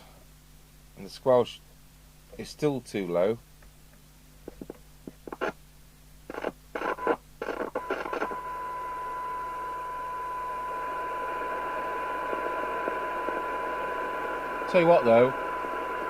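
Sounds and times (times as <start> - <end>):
radio squelch hiss bursts: 4.5 - 5.6, 6.2 - 8.8, 11.2 - 16.0
steady radio test tone: 6.3 - 16.0.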